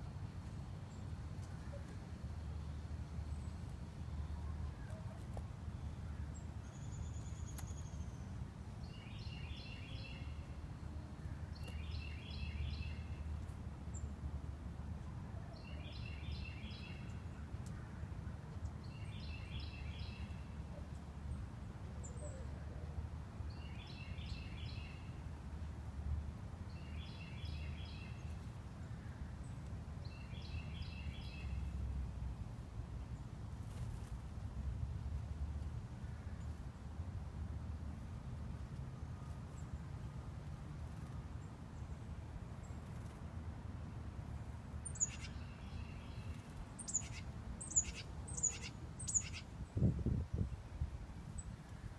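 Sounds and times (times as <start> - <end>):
songbird singing: 0.8 - 14.2, 15.3 - 17.9, 18.5 - 25.2, 26.7 - 32.0, 44.3 - 50.6.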